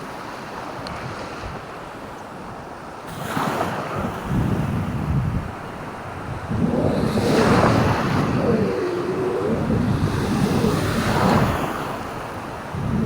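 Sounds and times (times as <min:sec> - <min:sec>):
surf washing onto shore: 0:03.1 - 0:13.0
wind buffeting microphone: 0:03.8 - 0:13.0
faint wavering tone: 0:06.5 - 0:11.6.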